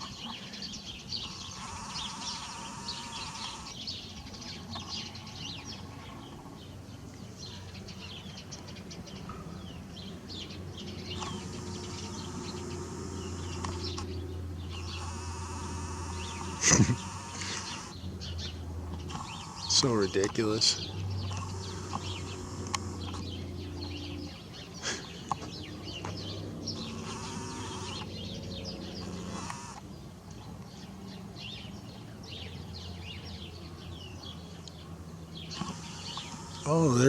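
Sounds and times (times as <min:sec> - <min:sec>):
small birds chirping: 0:00.0 - 0:37.0
steady low hum: 0:00.0 - 0:37.0.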